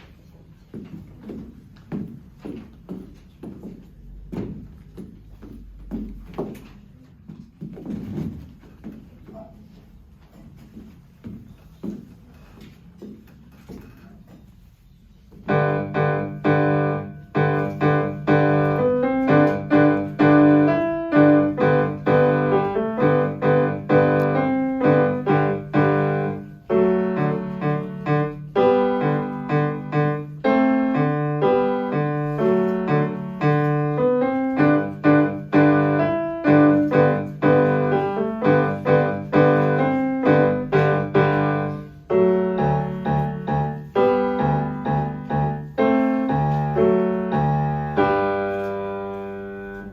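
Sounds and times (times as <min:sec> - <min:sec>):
solo piano piece: 0:15.4 - 0:49.9.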